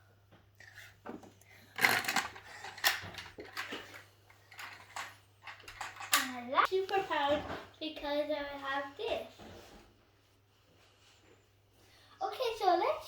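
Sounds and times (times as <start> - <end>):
plastic toys clattering: 1.6 - 6.6.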